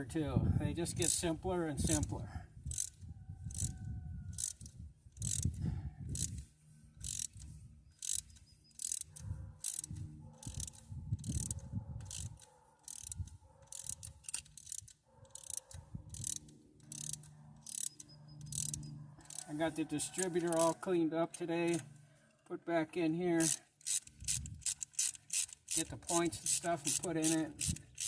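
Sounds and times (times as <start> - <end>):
ratchet wrench clicking: 1.0 - 2.1, 2.7 - 3.7, 4.3 - 19.5, 20.2 - 20.8, 21.6 - 21.8, 23.4 - 28.0.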